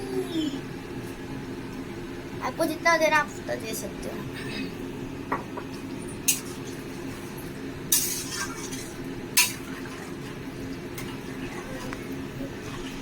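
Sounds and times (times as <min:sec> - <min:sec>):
steady low hum: 0:00.0 - 0:13.0
metal spoon scraping a pan: 0:07.9 - 0:09.6.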